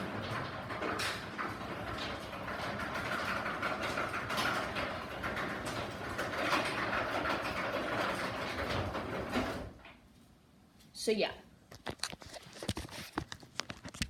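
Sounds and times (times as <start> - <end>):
garage door opener motor whine: 0.0 - 9.8
door rattles and clicks: 0.0 - 10.0.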